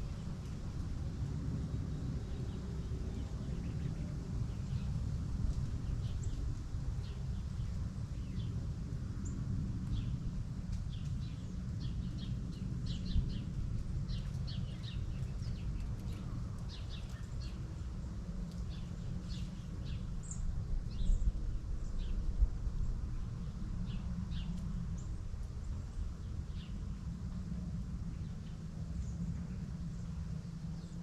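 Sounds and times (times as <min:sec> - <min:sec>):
steady low rumble: 0:00.0 - 0:31.0
small birds chirping: 0:09.2 - 0:22.3, 0:23.4 - 0:27.0.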